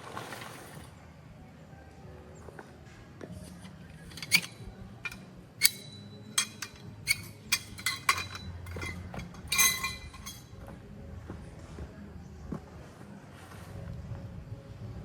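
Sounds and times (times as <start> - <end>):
cookware and utensils clinking: 4.0 - 10.5.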